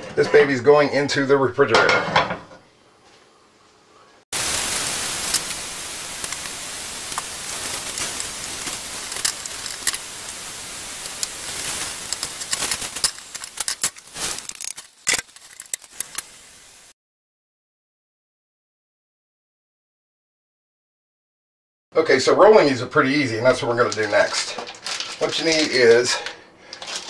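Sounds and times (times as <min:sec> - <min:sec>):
vegetables sizzling in a frying pan: 0:04.4 - 0:16.9.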